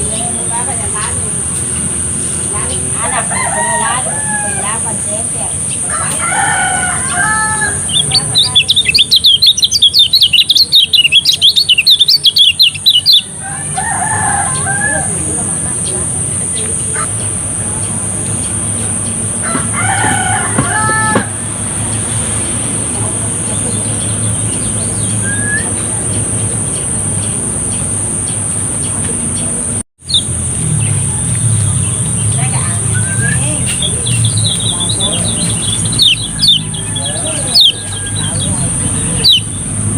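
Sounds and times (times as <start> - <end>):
bird twittering song: 0.0 - 21.2, 21.8 - 39.9
rooster crowing: 2.9 - 8.9, 13.2 - 15.7, 19.4 - 22.2, 34.7 - 39.4
low hum: 15.1 - 39.9.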